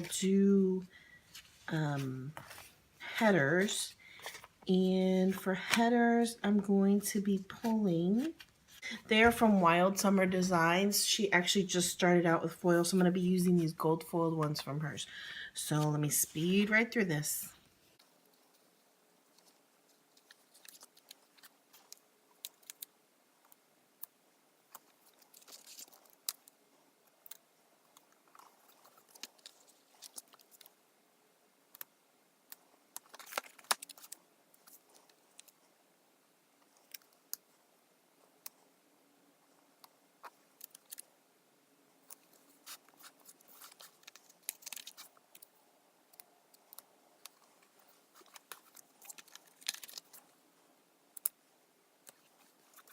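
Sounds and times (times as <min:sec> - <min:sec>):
paper sticker sheets rustling: 0:01.2 - 0:10.6, 0:19.3 - 0:22.9, 0:24.8 - 0:26.5, 0:28.3 - 0:30.7, 0:33.0 - 0:35.6, 0:42.1 - 0:45.4, 0:46.7 - 0:50.3.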